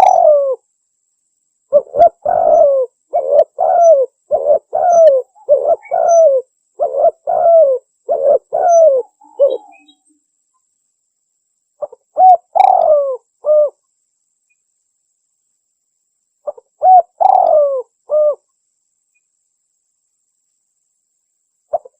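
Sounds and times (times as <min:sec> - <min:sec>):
dove cooing: 0:00.0 - 0:00.6, 0:01.7 - 0:10.0, 0:11.8 - 0:13.8, 0:16.4 - 0:18.4.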